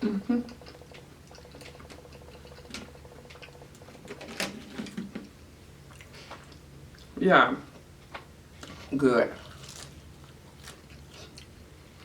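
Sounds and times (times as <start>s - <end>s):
chewing with wet mouth clicks: 0.5s - 3.9s.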